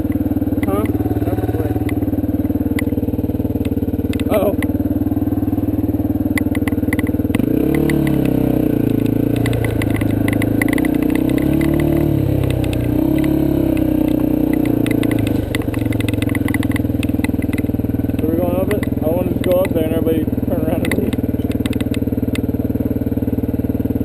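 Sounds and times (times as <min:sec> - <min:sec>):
dirt bike engine revving: 0:00.0 - 0:24.0
rattling clatter: 0:06.4 - 0:20.0, 0:20.6 - 0:22.0.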